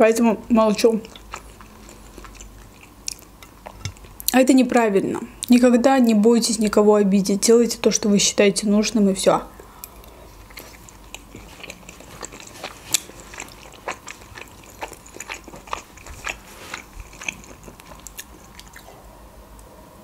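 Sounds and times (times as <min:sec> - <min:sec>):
close chewing with wet mouth smacks: 0:00.6 - 0:04.4, 0:10.4 - 0:19.0.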